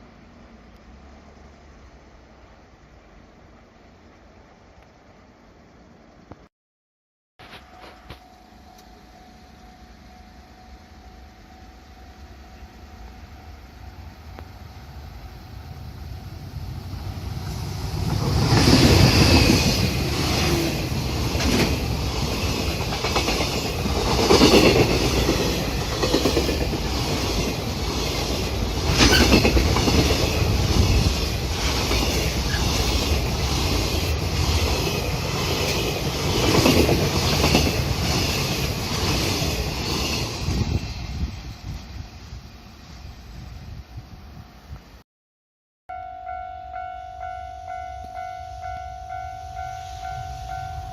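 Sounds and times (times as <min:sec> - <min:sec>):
freight train rumble: 0:07.4 - 0:45.0
wheels clacking over rail joints: 0:17.8 - 0:40.6.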